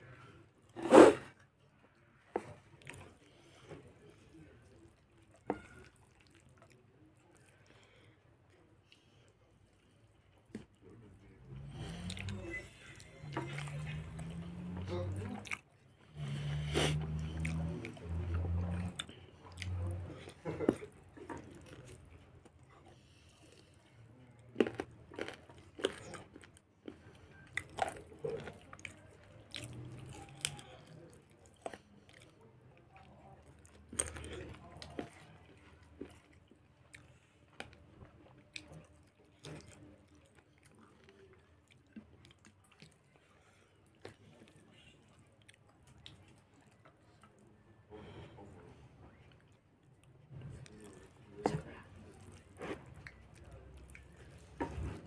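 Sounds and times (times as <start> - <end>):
person chewing with mouth clicks: 11.5 - 23.0, 24.5 - 47.4.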